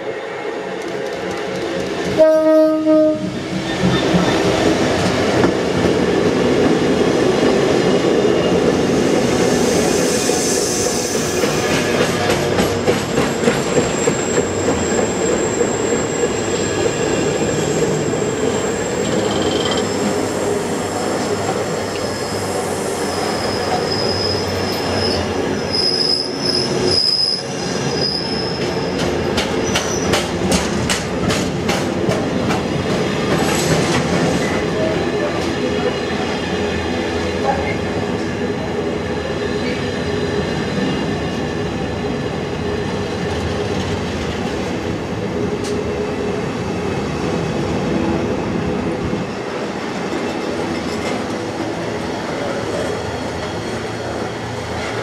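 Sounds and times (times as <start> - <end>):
diesel locomotive passing: 0.0 - 55.0
wheels rumbling on rail: 0.6 - 55.0
high wheel squeals: 13.3 - 21.0, 22.0 - 28.9.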